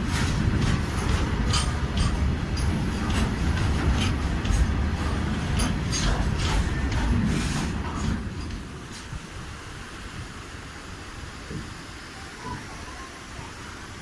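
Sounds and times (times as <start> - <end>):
wheels clicking on rails: 0.0 - 9.4
train rumbling on track: 0.0 - 14.0.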